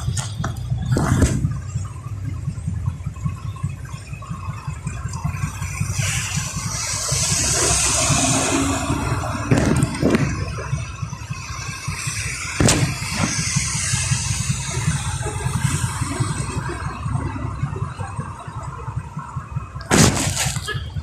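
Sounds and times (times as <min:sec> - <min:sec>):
engine and road rumble: 0:00.0 - 0:21.0
hiss: 0:05.9 - 0:09.2, 0:12.0 - 0:16.4.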